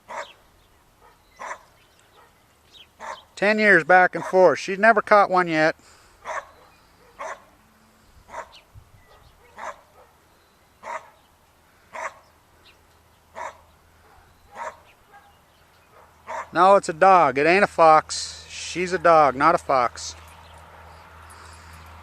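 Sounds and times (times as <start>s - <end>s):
dog barking: 0.1s - 0.4s, 1.0s - 2.4s, 3.0s - 3.3s, 6.2s - 7.5s, 8.3s - 10.2s, 10.8s - 11.2s, 11.9s - 12.2s, 13.4s - 16.6s.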